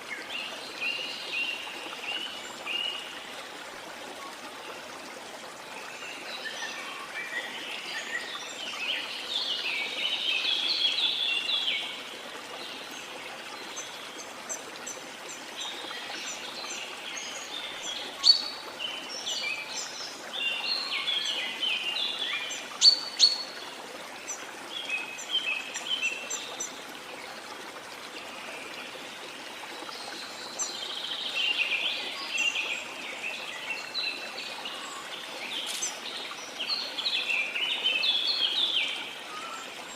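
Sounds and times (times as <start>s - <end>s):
birds chirping and calling: 35.6s - 36.0s.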